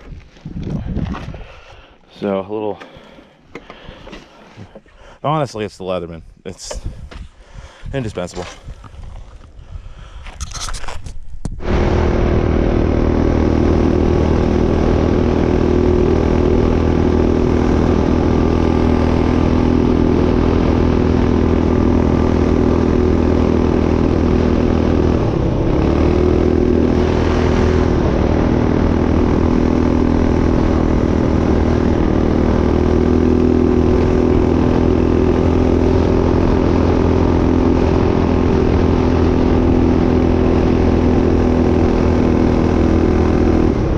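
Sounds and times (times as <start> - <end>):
small engine idling: 11.6 - 43.9.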